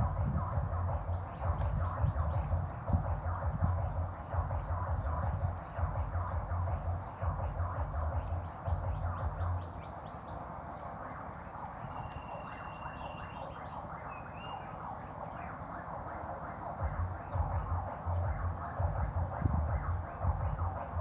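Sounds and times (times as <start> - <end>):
frogs calling: 0.0 - 21.0
thin whistle-like tone: 11.8 - 15.8.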